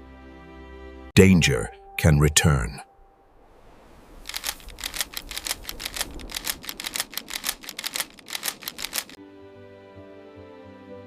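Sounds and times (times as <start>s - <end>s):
rapid dry clicks: 4.2s - 9.2s.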